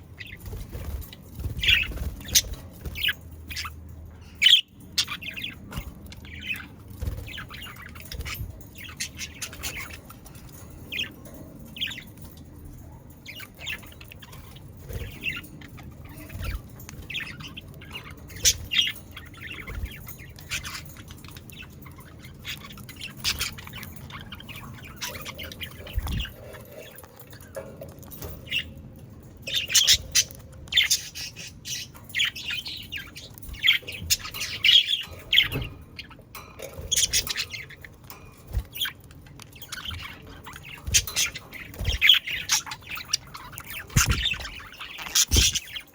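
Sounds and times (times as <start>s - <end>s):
budgerigars chattering: 39.6s - 45.9s.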